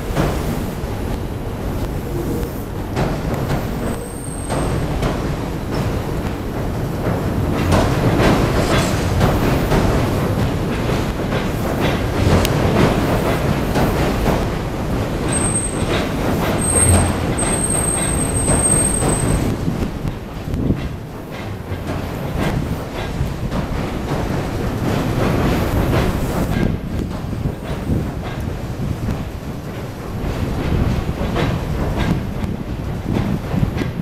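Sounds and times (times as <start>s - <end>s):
train rumbling across steel bridge: 0.0s - 34.0s
wheels clacking over rail joints: 0.0s - 34.0s
high wheel squeal: 4.0s - 4.9s, 15.3s - 15.9s, 16.6s - 19.5s.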